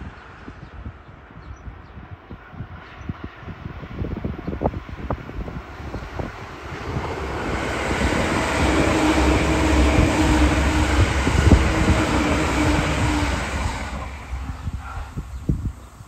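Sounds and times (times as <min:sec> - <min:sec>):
train wheels rolling on rails: 0:05.4 - 0:16.0.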